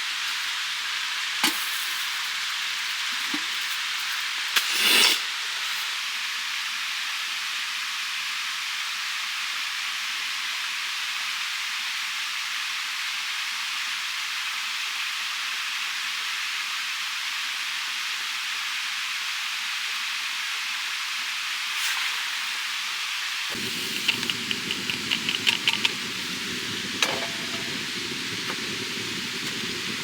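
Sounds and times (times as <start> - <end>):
food sizzling on hot plate: 0.0 - 6.1, 21.5 - 30.0.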